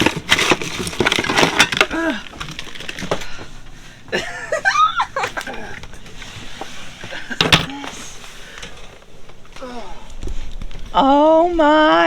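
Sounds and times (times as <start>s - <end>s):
knocks clatter and scraping: 0.0s - 3.8s.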